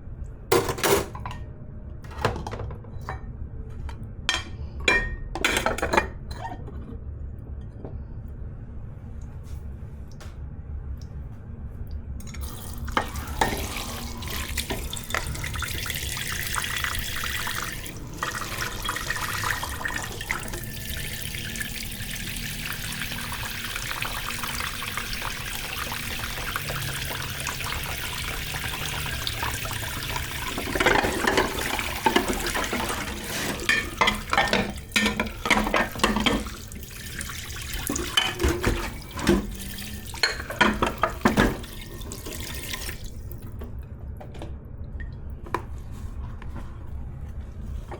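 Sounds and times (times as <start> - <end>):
dishes clattering in sink: 0.5 - 3.3, 4.3 - 7.0, 12.9 - 43.0
tap running into sink: 12.4 - 43.6.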